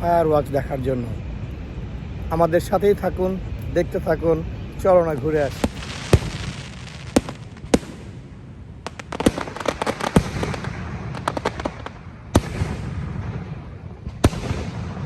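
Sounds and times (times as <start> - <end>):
low rumble: 0.0 - 9.6
fireworks bangs: 4.8 - 15.0
crackling pops: 5.1 - 8.1, 8.8 - 13.0.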